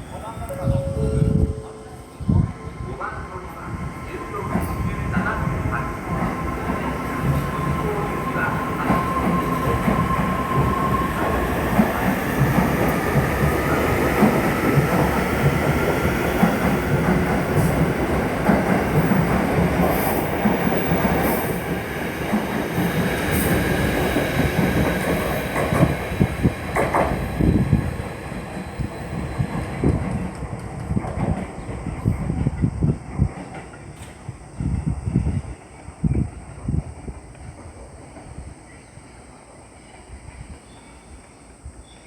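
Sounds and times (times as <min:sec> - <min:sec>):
train wheels rumbling on rail: 0:00.0 - 0:38.7.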